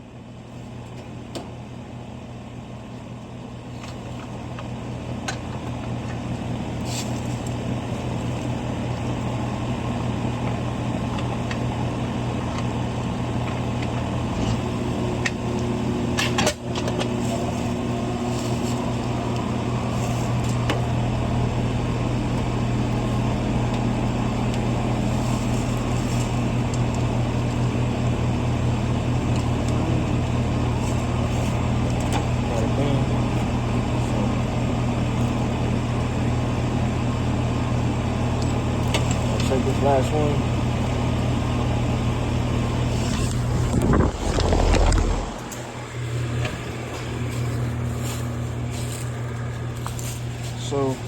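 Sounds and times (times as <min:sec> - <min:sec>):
air conditioner unit humming: 0:00.0 - 0:51.0
wind rumble on microphone: 0:43.1 - 0:45.5.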